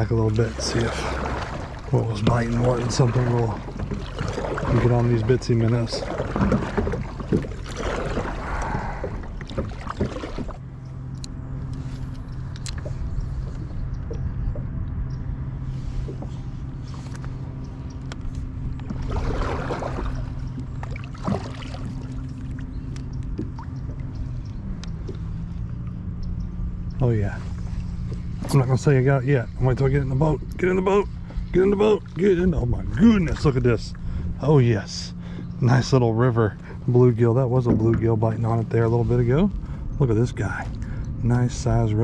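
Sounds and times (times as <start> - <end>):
steady low hum: 0.0 - 42.0
water around kayak: 0.0 - 42.0
wind: 0.0 - 42.0.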